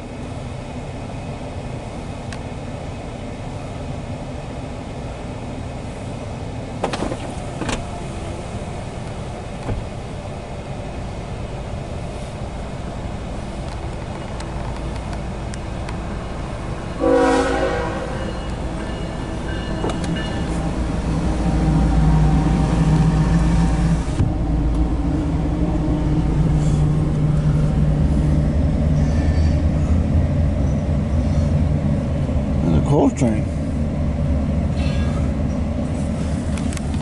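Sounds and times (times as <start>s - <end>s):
train low rumble: 0.0s - 37.0s
locomotive horn blast: 17.0s - 20.4s.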